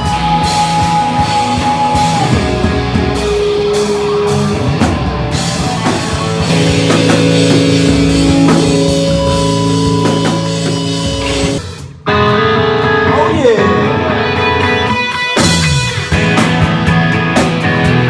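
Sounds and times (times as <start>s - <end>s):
distorted electric guitars: 0.0s - 18.0s
drum kit: 0.0s - 18.0s.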